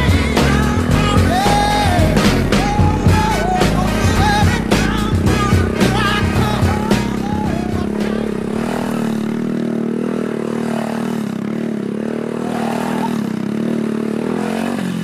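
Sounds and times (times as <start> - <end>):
music: 0.0 - 9.6
small motorcycle engine revving: 0.0 - 15.0.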